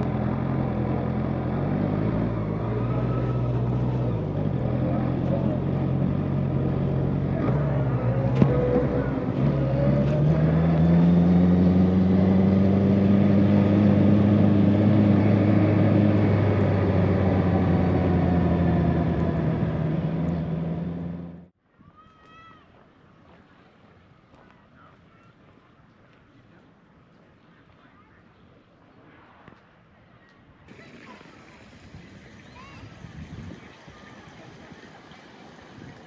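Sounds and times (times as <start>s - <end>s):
motorcycle engine accelerating: 0.0s - 21.5s, 30.7s - 36.0s.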